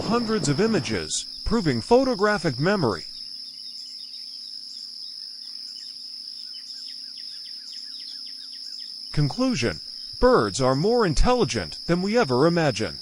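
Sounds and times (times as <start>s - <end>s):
insect chorus: 0.0s - 13.0s
bird chirps: 3.5s - 9.1s.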